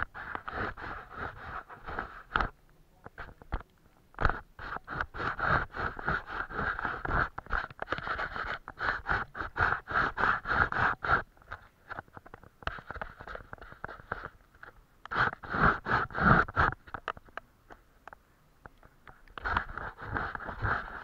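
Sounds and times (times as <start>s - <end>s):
paintbrush scrubbing on paper: 0.0s - 2.5s, 4.3s - 11.3s, 12.7s - 14.4s, 15.1s - 16.8s, 19.4s - 21.0s.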